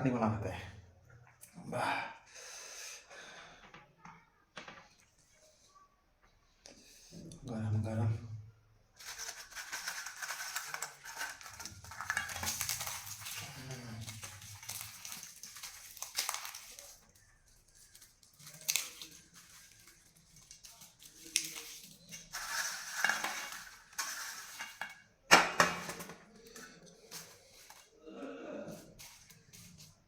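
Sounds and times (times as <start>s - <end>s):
chillies crackling and scraping on plate: 9.0s - 28.0s, 28.7s - 30.0s.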